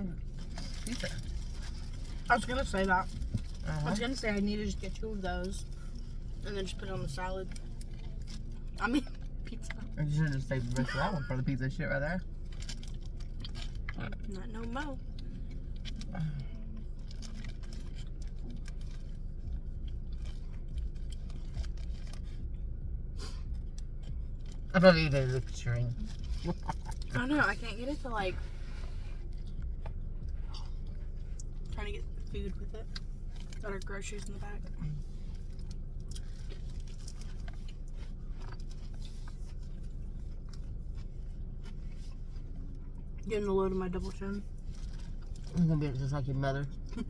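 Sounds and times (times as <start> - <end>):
car cabin rumble: 0.0 - 47.0
person chewing food: 12.2 - 27.2, 28.6 - 43.3, 44.5 - 46.1.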